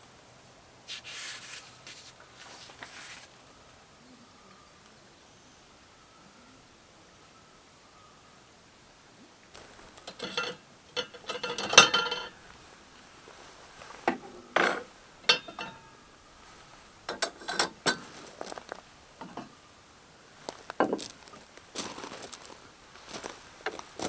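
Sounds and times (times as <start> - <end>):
small hard objects clicking and rattling: 9.6 - 12.6.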